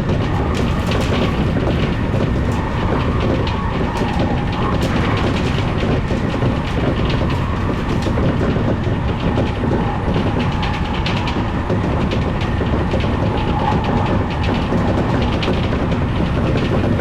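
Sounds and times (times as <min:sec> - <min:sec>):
electric train rumbling: 0:00.0 - 0:17.0
wheels clicking over rail joints: 0:00.0 - 0:17.0.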